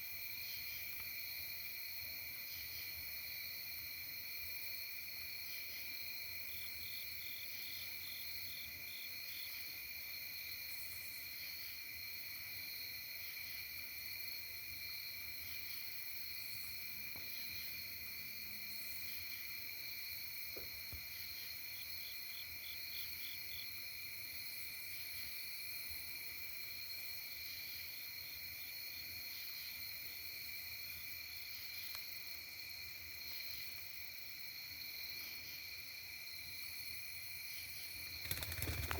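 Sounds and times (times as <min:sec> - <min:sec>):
shrill insect chorus: 0:00.0 - 0:38.9
rapid pulsed insect chirps: 0:29.4 - 0:38.9.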